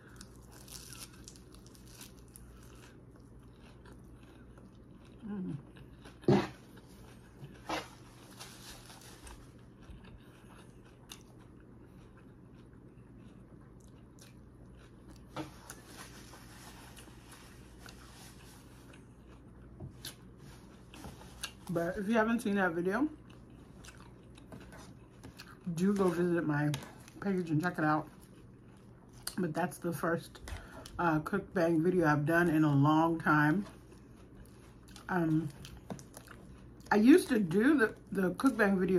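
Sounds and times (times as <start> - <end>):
person chewing: 0.0 - 21.7, 23.2 - 26.2, 28.0 - 29.4, 33.6 - 36.9
person crunching salad: 0.0 - 21.7, 23.2 - 26.2, 33.7 - 36.9.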